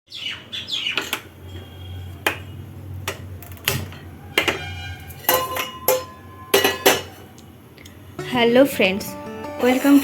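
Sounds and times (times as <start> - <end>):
kitchenware clinking: 2.2 - 7.4.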